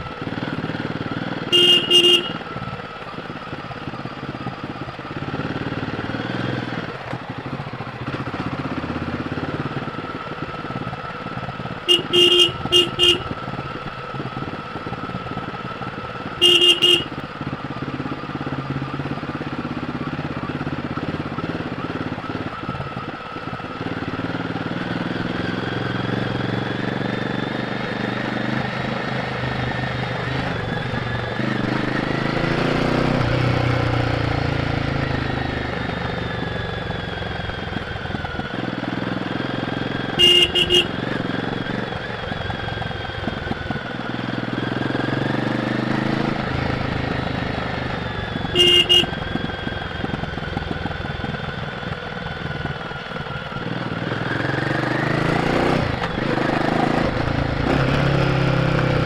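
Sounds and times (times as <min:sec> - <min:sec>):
motorcycle engine running: 0:00.0 - 0:59.0
horn toots: 0:01.4 - 0:02.6, 0:11.8 - 0:13.4, 0:16.3 - 0:17.2, 0:40.1 - 0:41.4, 0:48.4 - 0:49.4.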